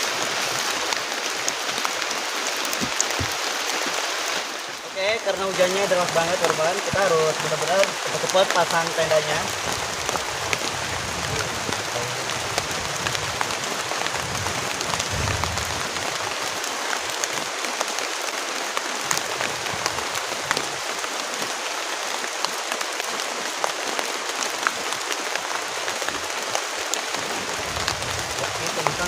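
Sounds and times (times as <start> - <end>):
heavy rain falling: 0.0 - 29.0
low rumble: 9.5 - 16.6.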